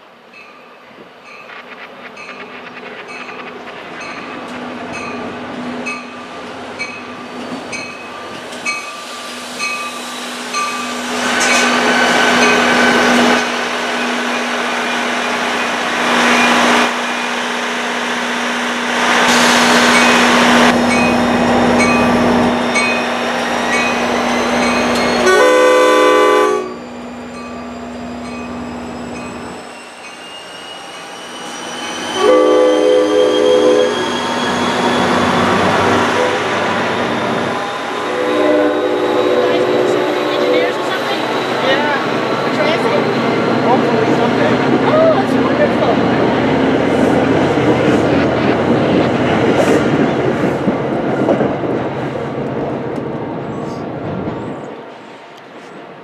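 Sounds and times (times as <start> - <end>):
wheel and rail noise: 0.0 - 25.8
locomotive bell ringing: 4.0 - 11.0, 19.9 - 25.9, 26.6 - 31.1
train horn blast: 25.2 - 26.8, 32.2 - 34.0, 37.9 - 40.8.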